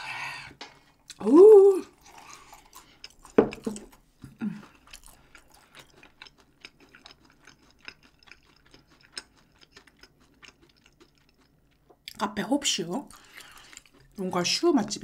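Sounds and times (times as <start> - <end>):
person chewing food: 1.8 - 12.2, 13.0 - 14.3.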